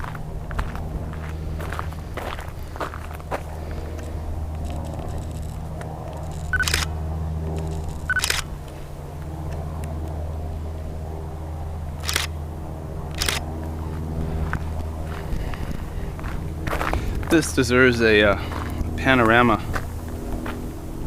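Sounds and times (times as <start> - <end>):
steady low hum: 0.0 - 21.0
camera shutter firing: 6.2 - 6.9, 7.6 - 8.5, 12.0 - 12.4, 13.1 - 13.5.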